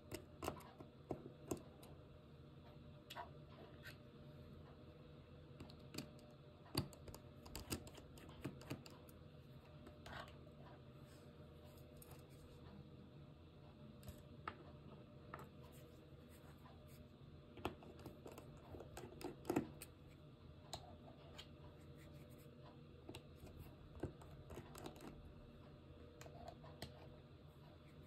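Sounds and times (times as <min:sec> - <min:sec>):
small clicks and taps: 0:00.0 - 0:01.9, 0:05.6 - 0:09.2
steady low hum: 0:00.0 - 0:28.0.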